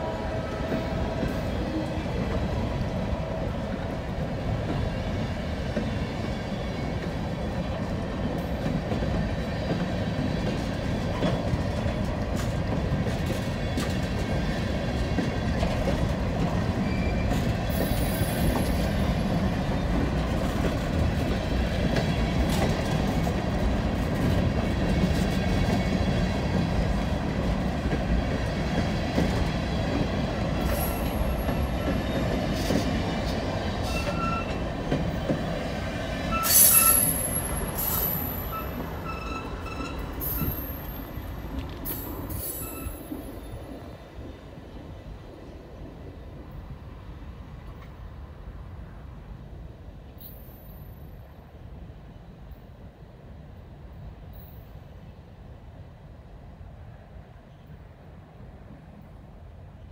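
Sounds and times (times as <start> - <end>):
steel wheels rumbling on rail: 0.0 - 59.9
high wheel squeals: 33.8 - 34.6, 36.3 - 41.2, 41.9 - 43.2.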